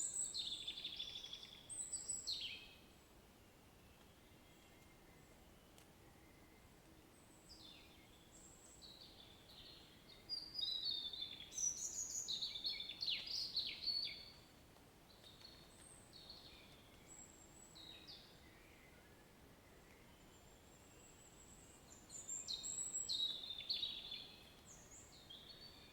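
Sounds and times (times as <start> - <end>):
faint rain hiss: 0.0 - 25.9
songbird chirping and whistling: 9.5 - 14.3.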